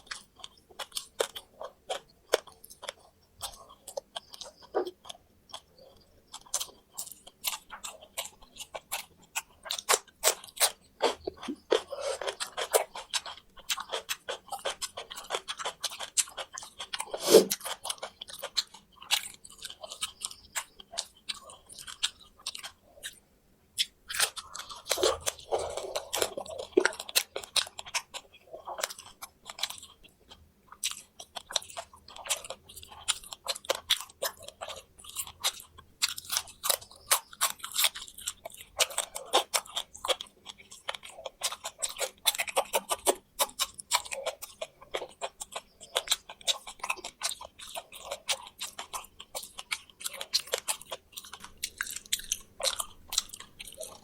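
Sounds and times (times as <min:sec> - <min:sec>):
chewing crispy fried food: 0:00.0 - 0:54.0
bones cracking between teeth: 0:23.8 - 0:54.0.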